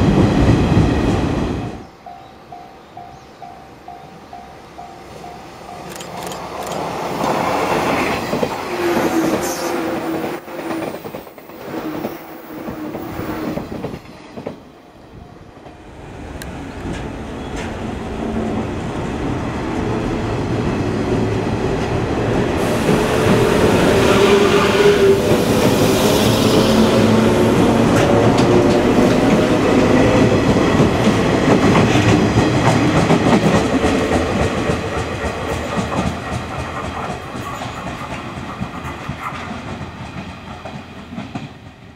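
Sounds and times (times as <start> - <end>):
train motor hum: 15.7 - 32.3
train wheels clacking over rail joints: 27.7 - 41.8.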